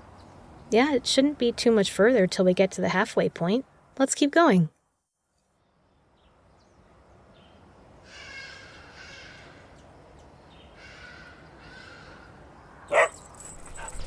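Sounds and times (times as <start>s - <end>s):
crow cawing: 8.1s - 9.7s, 10.8s - 12.4s.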